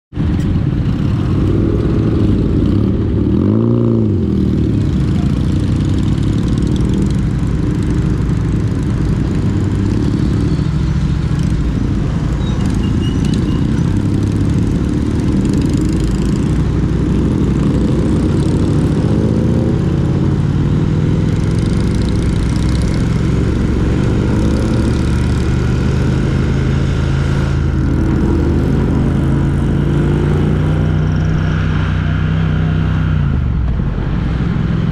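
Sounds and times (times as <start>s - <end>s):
road noise: 0.1s - 34.9s
vehicle engine running: 0.1s - 34.9s.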